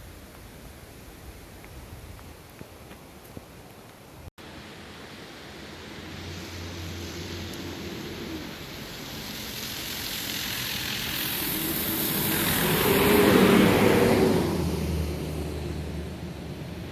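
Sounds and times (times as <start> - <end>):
motor vehicle passing: 5.5 - 16.9.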